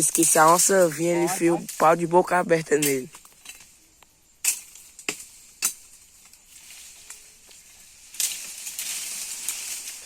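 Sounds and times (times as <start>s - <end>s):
dry sticks crackling: 0.0s - 10.0s.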